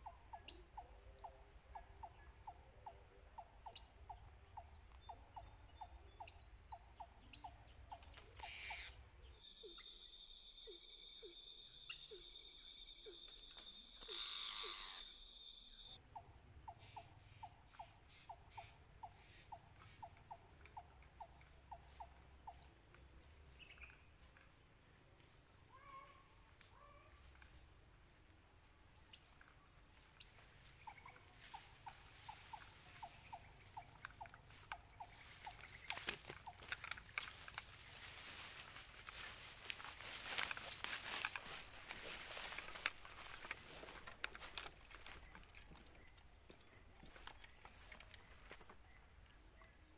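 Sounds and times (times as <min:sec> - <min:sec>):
insects whining: 0:00.0 - 0:10.6, 0:11.2 - 0:49.9
quick chirps: 0:07.3 - 0:09.0
rustling clicks: 0:35.5 - 0:45.1.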